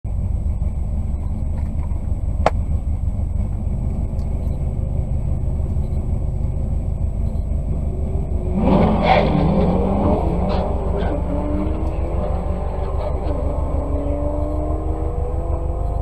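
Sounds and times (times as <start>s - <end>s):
car engine idling: 0.0s - 8.6s
car engine revving: 1.5s - 16.0s.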